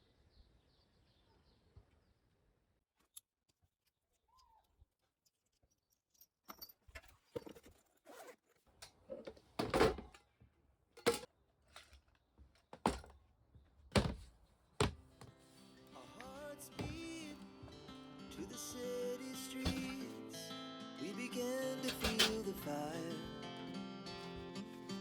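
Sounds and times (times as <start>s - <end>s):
objects knocking and clunking: 9.1s - 10.2s, 11.0s - 13.2s, 13.9s - 15.3s, 16.8s - 17.7s, 19.6s - 20.1s, 21.8s - 22.6s.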